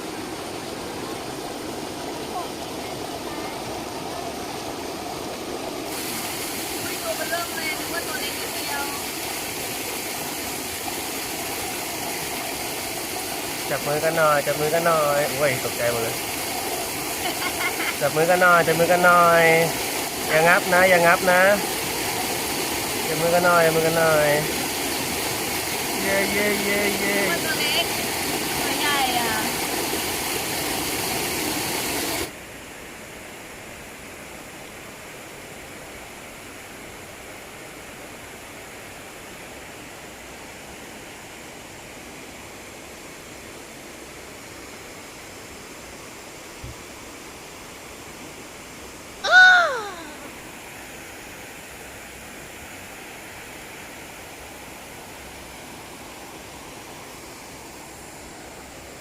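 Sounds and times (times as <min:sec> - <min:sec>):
waterfall rushing: 0:00.0 - 0:32.7, 0:48.8 - 0:59.0.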